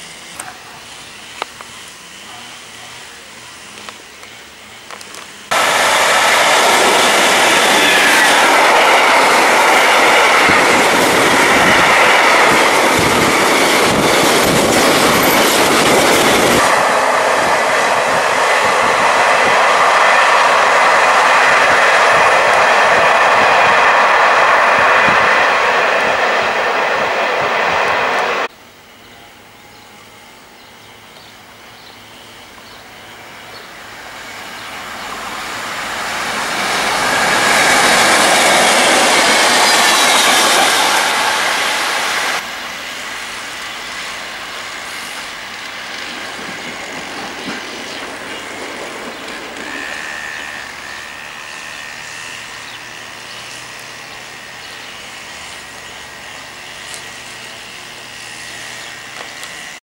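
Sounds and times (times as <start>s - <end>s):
rail noise of diesel train: 0.0s - 59.8s
train passing close by: 0.0s - 59.8s
high-pitched wheel squeal: 49.1s - 55.5s.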